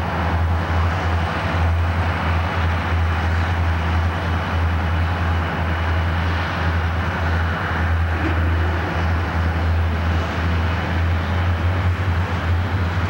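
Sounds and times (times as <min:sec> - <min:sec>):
diesel locomotives working hard: 0:00.0 - 0:13.0
train cars rolling past: 0:00.0 - 0:13.0.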